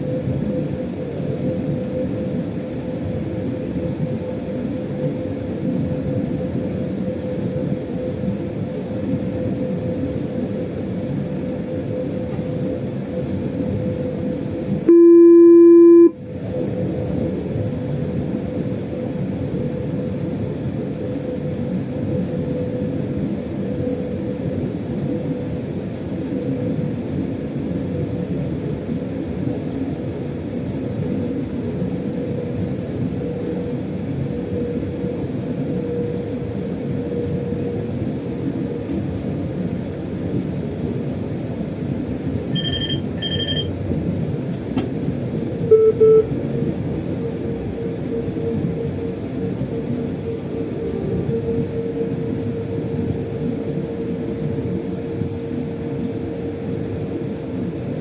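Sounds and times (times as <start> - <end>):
faint steady hum: 14.9 - 16.2
low tone: 14.9 - 16.2, 45.6 - 46.4
short electronic beeps: 14.9 - 16.2, 42.5 - 43.7, 45.7 - 46.3.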